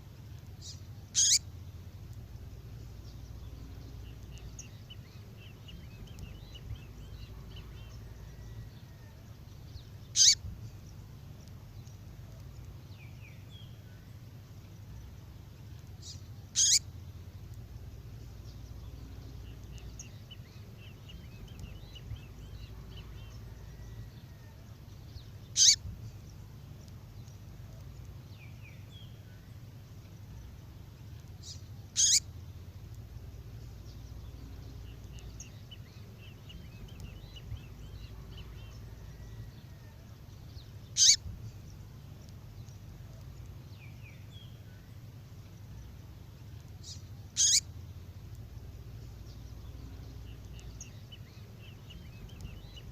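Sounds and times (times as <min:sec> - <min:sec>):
low steady hum: 0:00.0 - 0:52.9
faint bird twittering: 0:00.4 - 0:52.9
sharp high bird calls: 0:00.6 - 0:01.5, 0:10.1 - 0:10.5, 0:16.0 - 0:16.9, 0:25.5 - 0:25.9, 0:31.4 - 0:32.3, 0:40.9 - 0:41.3, 0:46.8 - 0:47.7.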